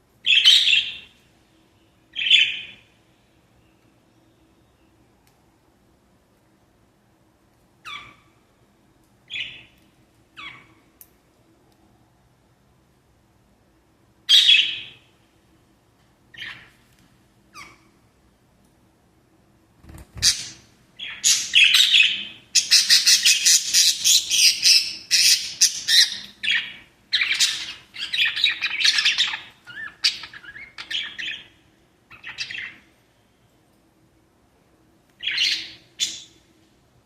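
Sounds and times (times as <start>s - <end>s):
parrots chirping and squawking: 7.9s - 8.2s, 17.6s - 17.9s, 20.2s - 31.5s, 32.1s - 32.8s.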